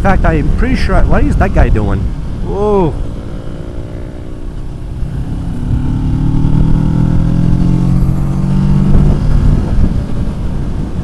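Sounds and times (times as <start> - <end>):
wind rumble: 0.0 - 11.0
motorcycle engine accelerating: 3.0 - 10.7.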